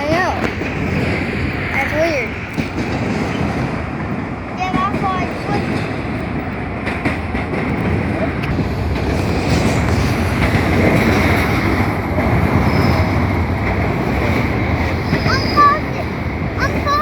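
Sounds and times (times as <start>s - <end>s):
train rumbling past: 0.0s - 17.0s
wheels clicking: 0.0s - 17.0s.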